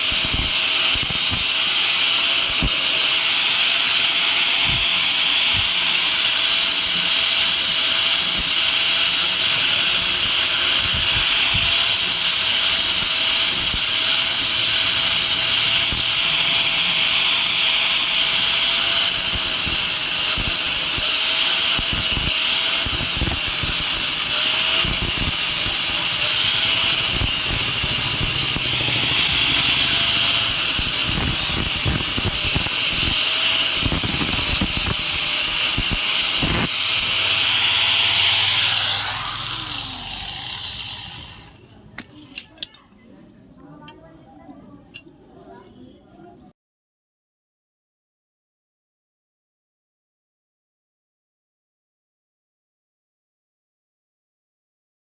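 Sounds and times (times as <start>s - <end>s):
workshop machine hiss and whine: 0.0s - 41.6s.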